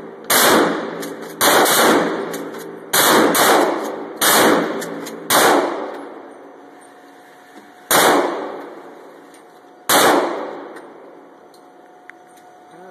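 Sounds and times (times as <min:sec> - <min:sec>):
gunshots with long echo: 0:00.0 - 0:06.3, 0:07.9 - 0:08.9, 0:09.9 - 0:11.1.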